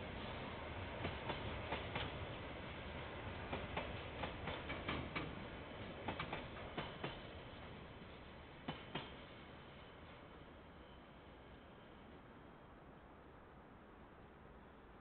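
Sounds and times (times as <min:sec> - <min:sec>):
train wheels clicking over joints: 0:01.0 - 0:02.2, 0:03.4 - 0:07.3, 0:08.7 - 0:09.2.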